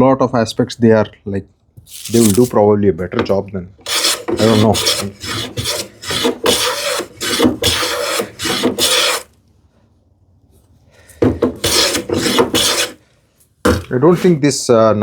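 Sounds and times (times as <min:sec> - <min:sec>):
hand plane shaving wood: 0:03.9 - 0:09.3, 0:11.5 - 0:13.0, 0:13.7 - 0:14.4.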